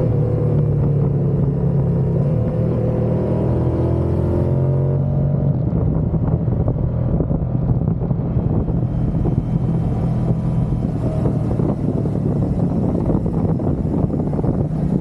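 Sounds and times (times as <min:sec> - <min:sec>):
motorcycle engine cruising: 0:00.0 - 0:15.0
wind buffeting microphone: 0:04.9 - 0:15.0.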